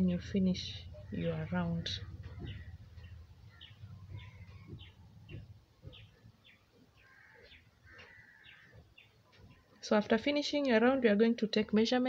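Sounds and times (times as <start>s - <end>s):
faint birds chirping: 0.0s - 11.8s.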